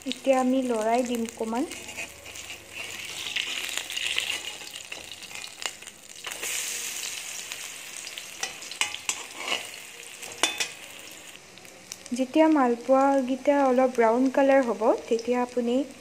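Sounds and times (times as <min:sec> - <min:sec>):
fritters sizzling in oil: 0:00.0 - 0:16.0
metal spatula scraping a pan: 0:01.1 - 0:11.4.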